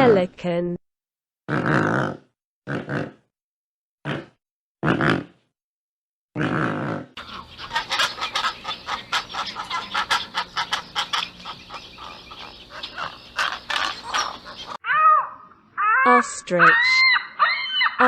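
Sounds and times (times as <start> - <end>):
pelicans calling harshly: 7.2 - 18.0.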